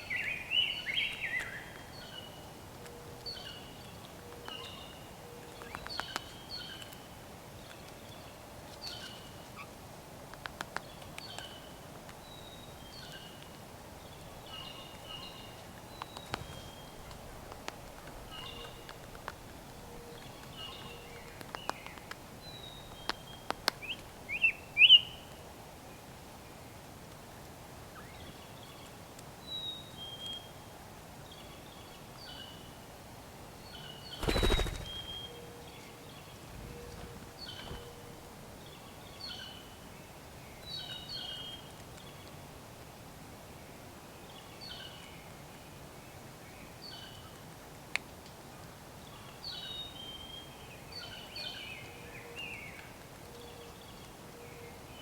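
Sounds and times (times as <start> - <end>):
wild birds calling: 34.1 - 35.6.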